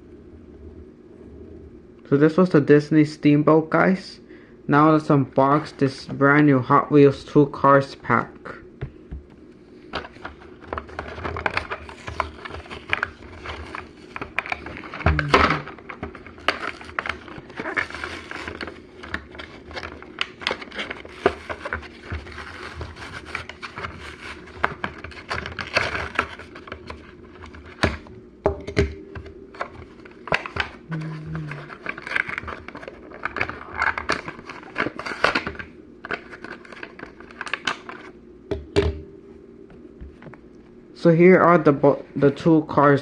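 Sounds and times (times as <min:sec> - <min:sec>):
plastic packaging crinkling: 0:10.0 - 0:27.8, 0:29.5 - 0:38.2.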